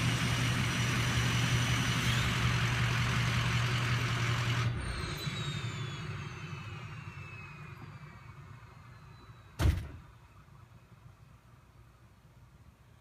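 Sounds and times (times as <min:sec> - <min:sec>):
turbocharger whistle falling: 0:04.8 - 0:09.7
loud slam: 0:09.6 - 0:10.0.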